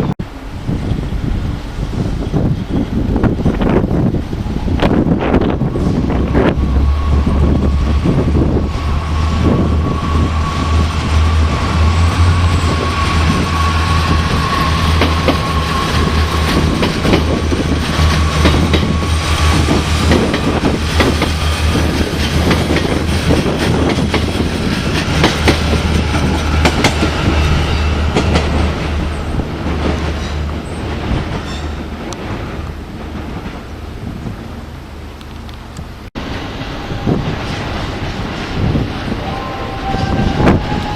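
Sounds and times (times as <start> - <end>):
train rumble: 0.0 - 40.9
train wheels clattering: 11.9 - 33.7.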